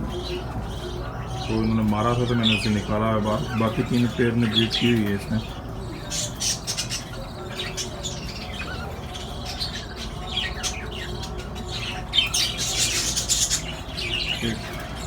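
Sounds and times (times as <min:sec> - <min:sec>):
budgerigars chattering: 0:00.0 - 0:15.0.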